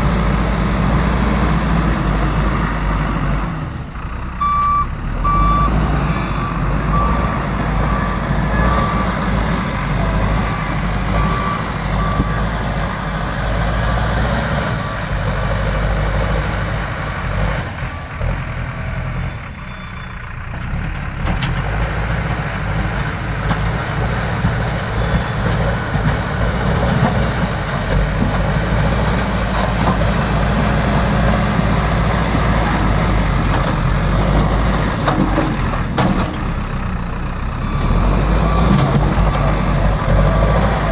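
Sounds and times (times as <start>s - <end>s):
diesel engine running: 0.0s - 40.9s
reversing alarm beeping: 4.4s - 13.9s, 37.6s - 40.9s.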